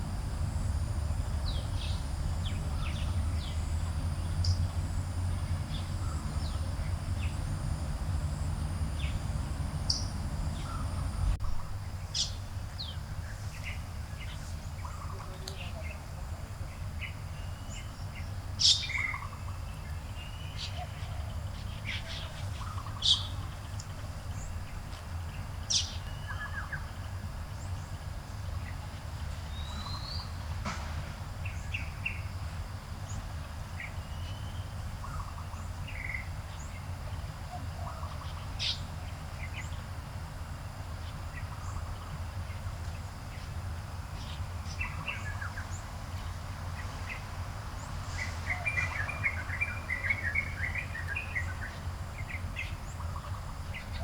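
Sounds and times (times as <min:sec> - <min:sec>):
low background rumble: 0:00.0 - 0:54.0
birds chirping and calling: 0:08.8 - 0:11.6.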